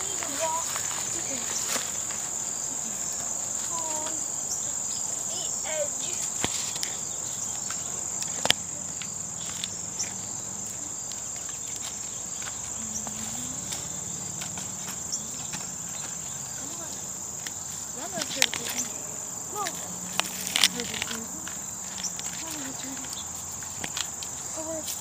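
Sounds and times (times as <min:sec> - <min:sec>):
light footsteps: 0:00.0 - 0:04.2, 0:05.3 - 0:25.0
crickets chirping: 0:00.0 - 0:25.0.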